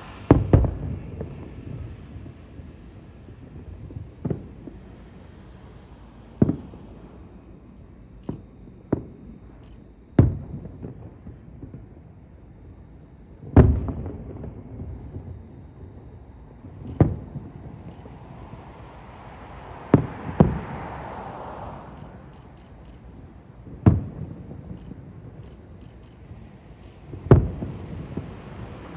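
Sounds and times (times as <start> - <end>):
fireworks booming: 0.0 - 7.6, 16.6 - 22.8, 26.2 - 28.9.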